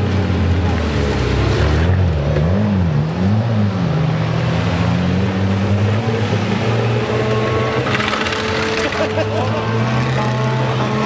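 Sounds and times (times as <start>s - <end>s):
car engine revving: 0.4s - 11.0s.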